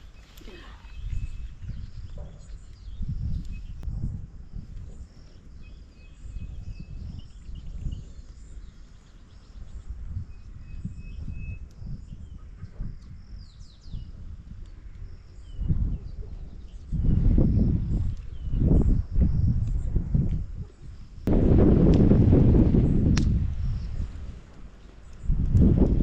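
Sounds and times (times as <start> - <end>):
low rumble: 21.2 - 24.5.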